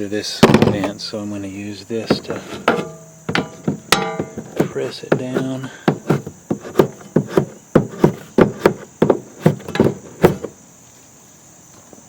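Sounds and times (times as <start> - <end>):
hand tool knocking: 0.4 - 1.0, 2.0 - 10.5.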